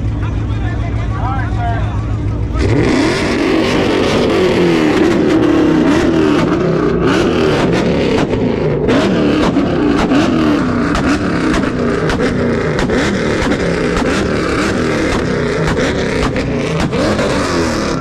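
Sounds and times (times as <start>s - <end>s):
car engine revving hard: 2.5s - 18.0s
sharp cracks: 9.4s - 18.0s.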